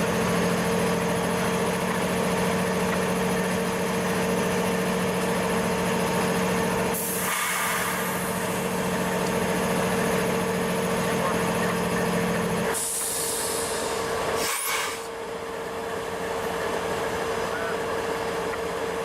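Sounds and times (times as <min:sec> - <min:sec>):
diesel engine idling: 0:00.0 - 0:19.0
burst of hiss: 0:07.0 - 0:08.4, 0:12.8 - 0:15.1.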